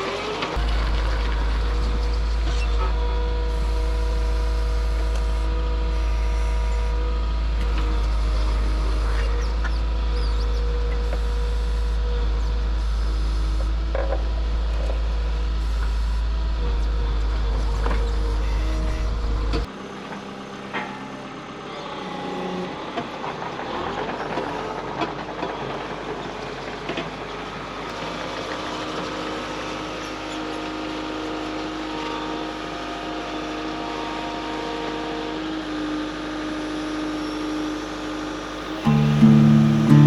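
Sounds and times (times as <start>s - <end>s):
heavy vehicle engine running: 38.6s - 40.0s.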